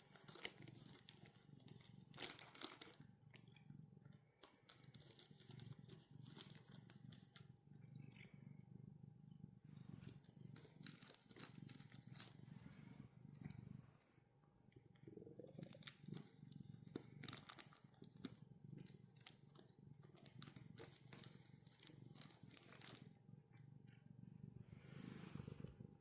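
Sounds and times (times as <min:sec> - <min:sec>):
kitten chewing and crunching: 0:00.0 - 0:08.0, 0:10.0 - 0:12.4, 0:15.0 - 0:23.3
kitten purring: 0:00.0 - 0:26.0.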